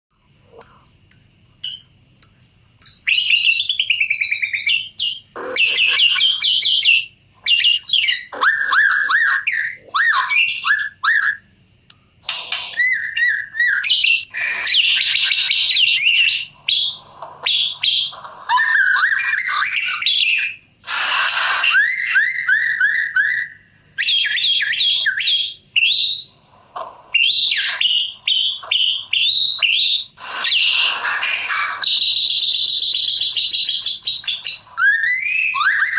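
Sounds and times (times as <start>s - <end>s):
bird singing whistled phrases: 12.7s - 20.6s, 21.6s - 26.3s, 27.1s - 35.9s.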